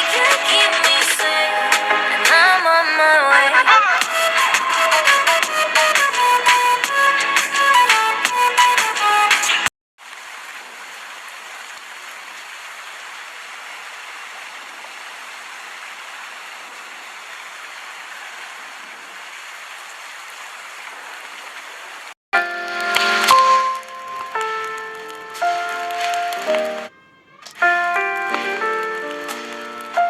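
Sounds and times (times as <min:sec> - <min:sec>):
steady rain falling: 0:10.0 - 0:26.9, 0:27.5 - 0:30.0.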